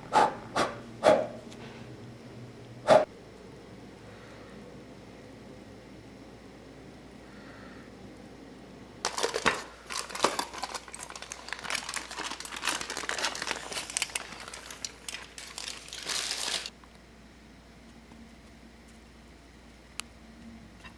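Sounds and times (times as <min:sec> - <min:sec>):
paper crumpling and crackling: 0:09.1 - 0:16.8.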